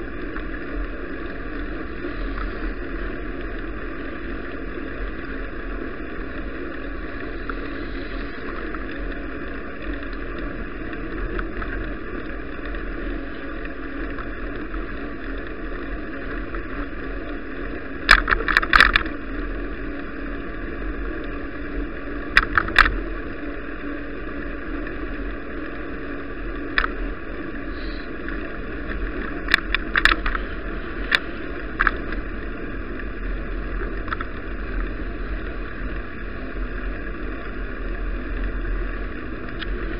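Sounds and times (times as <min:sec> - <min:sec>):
bicycle rolling: 0:00.0 - 0:39.9
bike clicks and rattles: 0:00.1 - 0:39.9.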